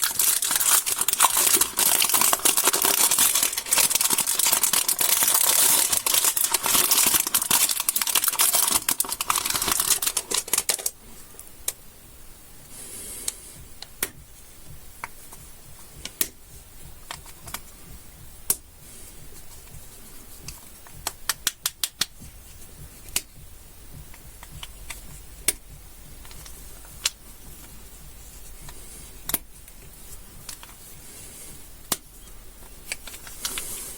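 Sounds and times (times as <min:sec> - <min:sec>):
candy wrapper crinkling: 0:00.0 - 0:11.0.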